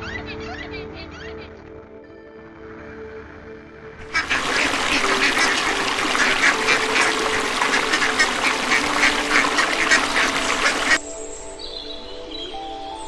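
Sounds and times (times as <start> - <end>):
ducks quacking: 4.0 - 11.0.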